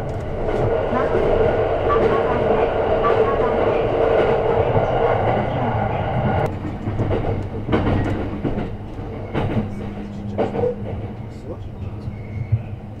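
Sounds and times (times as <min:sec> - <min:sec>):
train running rushing noise: 0:00.0 - 0:13.0
train wheels knocking over rail joints: 0:06.5 - 0:11.2.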